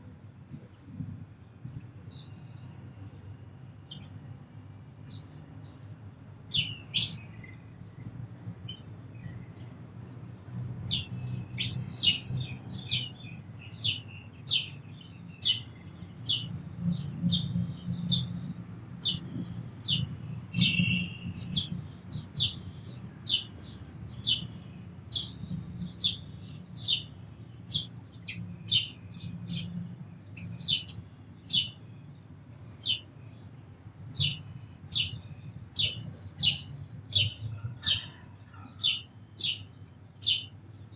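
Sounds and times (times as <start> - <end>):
sparrow chirping: 1.5 - 40.9.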